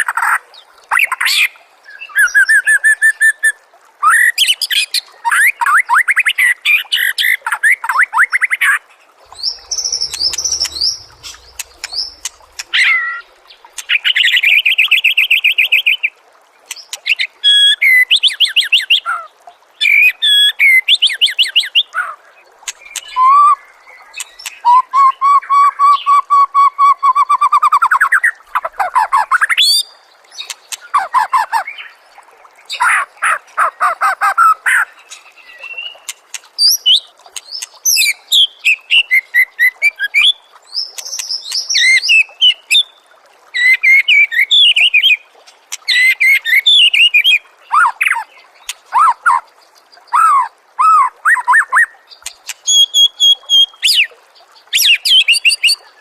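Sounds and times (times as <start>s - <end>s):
long rising bird trill: 9.3s - 13.0s
bird singing trills and whistles: 9.3s - 13.2s, 52.6s - 54.1s.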